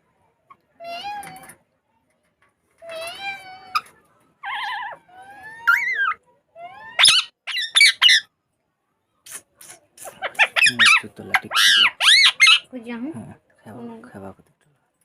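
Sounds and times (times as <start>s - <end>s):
parrot whistling and calling: 4.4s - 8.3s, 10.0s - 12.7s.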